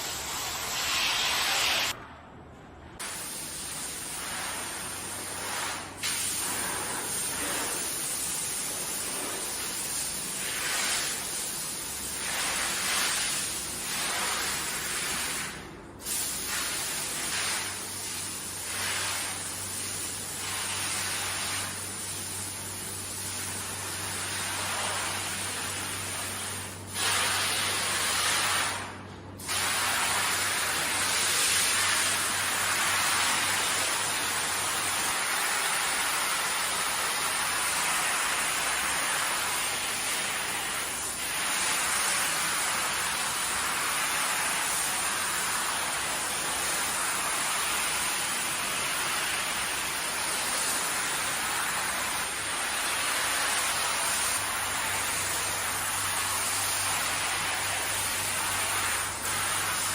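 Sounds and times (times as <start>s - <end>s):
water sprayer hissing: 0.0s - 2.0s.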